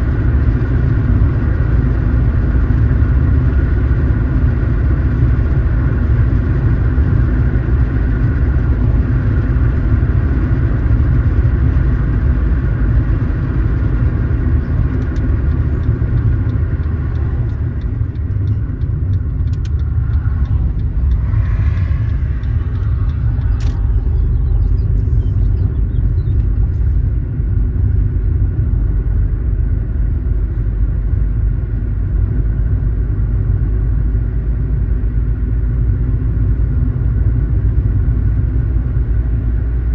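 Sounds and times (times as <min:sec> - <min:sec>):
car engine and road rumble: 0:00.0 - 0:39.9
faint clicks: 0:14.8 - 0:24.1.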